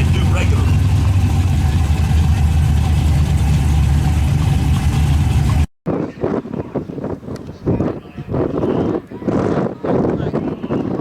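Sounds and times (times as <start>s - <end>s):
car engine idling loudly: 0.0s - 5.7s.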